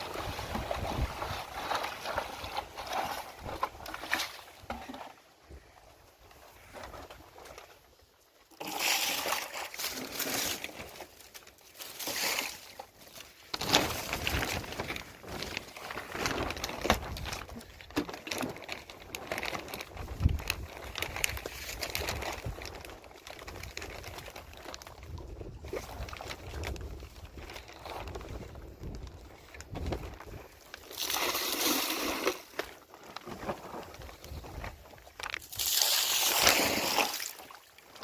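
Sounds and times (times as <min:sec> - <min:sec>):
wind rumble on microphone: 0:00.0 - 0:01.4, 0:19.8 - 0:22.8, 0:23.5 - 0:30.5
water sloshing and pouring: 0:00.0 - 0:05.6, 0:08.4 - 0:38.0.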